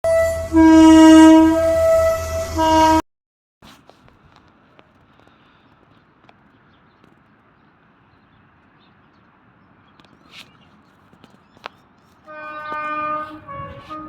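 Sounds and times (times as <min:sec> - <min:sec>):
faint outdoor background noise: 0:03.6 - 0:14.0.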